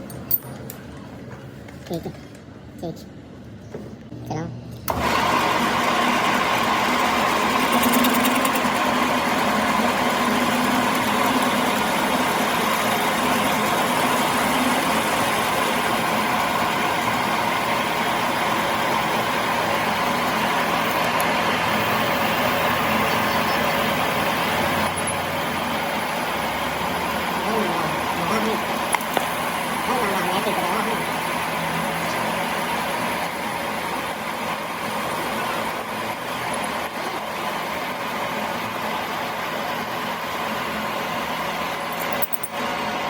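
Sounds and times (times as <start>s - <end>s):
workshop machine running: 0.0s - 43.0s.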